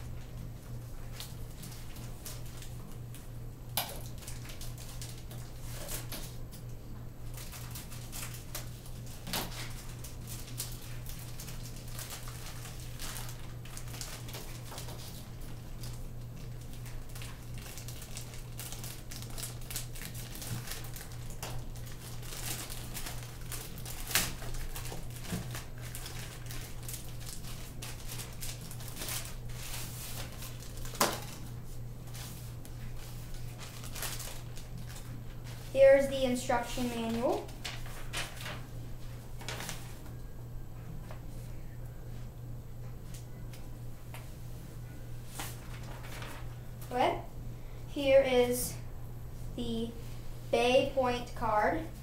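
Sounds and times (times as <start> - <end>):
steady low hum: 0.0 - 52.0
packaging rustling and crinkling: 0.2 - 3.3, 3.9 - 6.7, 7.3 - 35.8, 36.6 - 40.2, 45.3 - 46.9.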